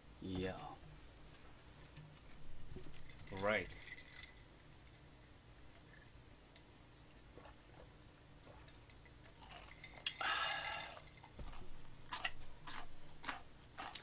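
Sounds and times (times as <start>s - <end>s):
chewing crisp fried chicken: 7.3s - 14.0s.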